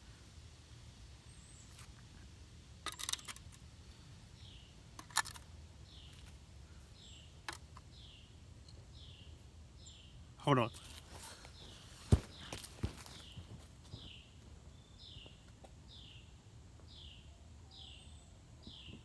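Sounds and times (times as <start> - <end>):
bird chirping: 1.2 - 2.0, 3.9 - 19.0
small hard objects clicking: 2.8 - 3.7, 5.0 - 5.5.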